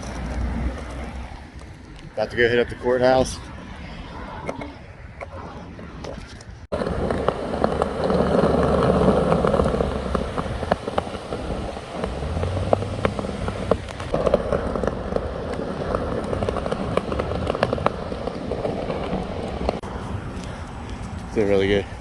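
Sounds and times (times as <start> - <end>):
skateboard wheels rolling on concrete: 0.0 - 22.0
skateboard clicks and knocks: 6.0 - 21.3.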